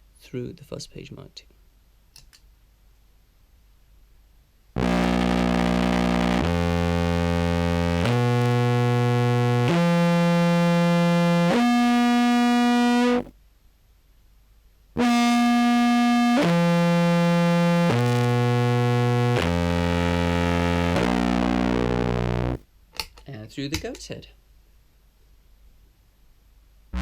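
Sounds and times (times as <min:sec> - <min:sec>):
distorted contrabass clarinet: 0:04.8 - 0:13.3, 0:15.0 - 0:22.6.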